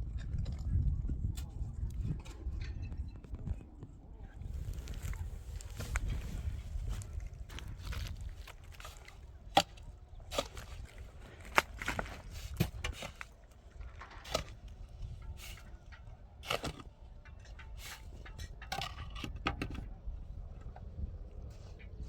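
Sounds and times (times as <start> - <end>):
sharp knocks and scrapes: 4.9 - 19.9.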